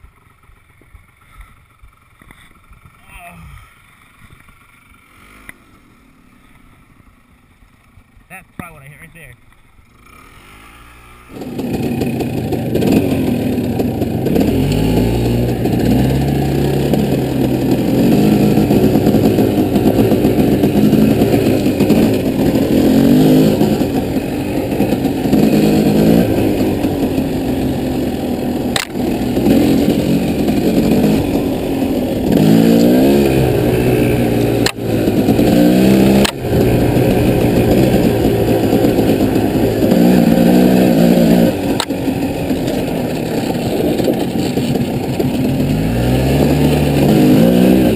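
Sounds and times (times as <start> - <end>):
off-road vehicle engine revving: 5.0 - 6.6, 9.8 - 47.9
vehicle jolting over rough ground: 11.4 - 47.9.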